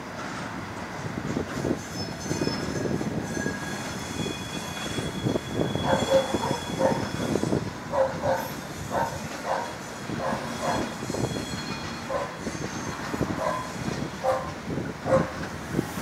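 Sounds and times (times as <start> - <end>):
train wheels rumbling and knocking: 0.0 - 16.0
high wheel squeal: 1.6 - 15.2
dog barking: 5.9 - 7.0, 7.9 - 10.8, 12.1 - 12.3, 13.4 - 14.5, 15.1 - 15.3.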